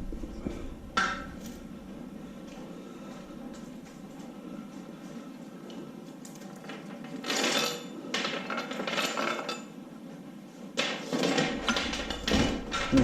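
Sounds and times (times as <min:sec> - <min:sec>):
low background hum: 0:00.0 - 0:13.0
metal clattering and clinking: 0:06.6 - 0:09.8, 0:10.8 - 0:13.0.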